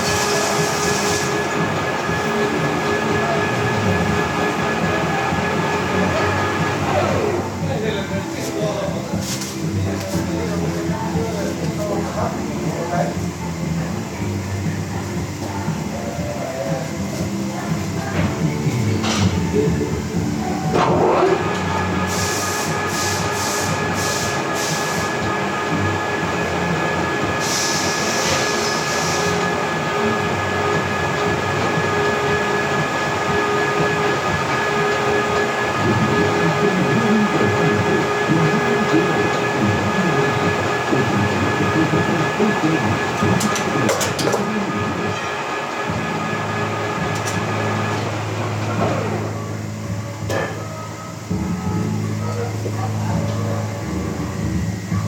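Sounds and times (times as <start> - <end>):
metalworking machine whine: 0.0 - 55.0.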